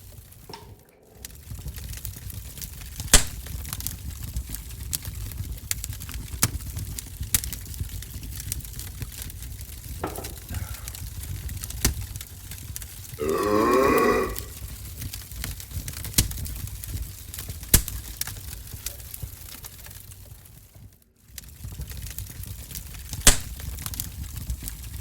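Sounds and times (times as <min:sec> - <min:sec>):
wood stove fire crackling: 0:00.0 - 0:25.0
man burping: 0:13.2 - 0:14.6.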